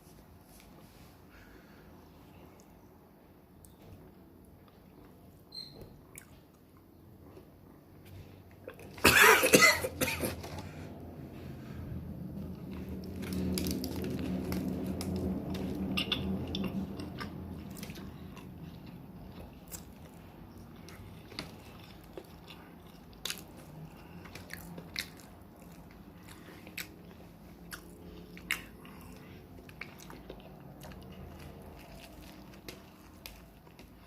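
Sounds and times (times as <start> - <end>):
low hum: 10.4 - 23.0
sandwich being bitten and chewed: 12.2 - 34.0.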